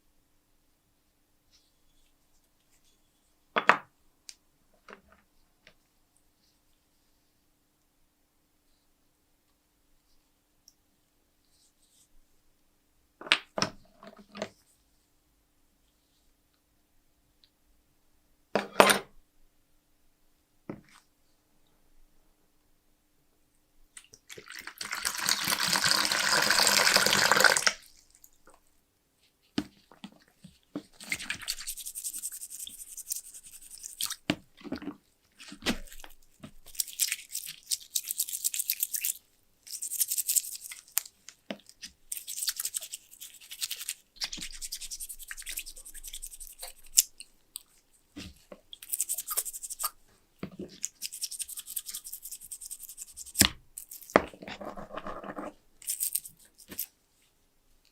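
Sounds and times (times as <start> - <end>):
brush scrubbing metal case: 30.9 - 34.1.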